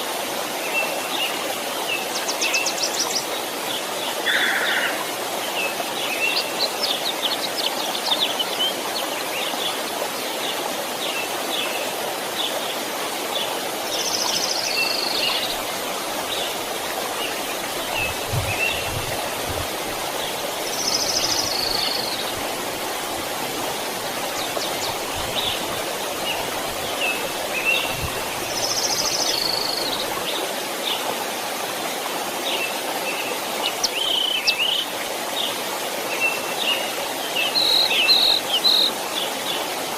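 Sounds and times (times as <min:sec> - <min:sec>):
stream flowing: 0:00.0 - 0:39.9
birds chirping: 0:13.4 - 0:22.6.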